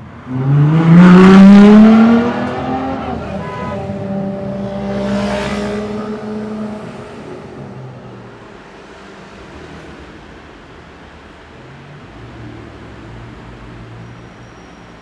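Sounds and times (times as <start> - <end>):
car engine accelerating hard: 0.0 - 14.2.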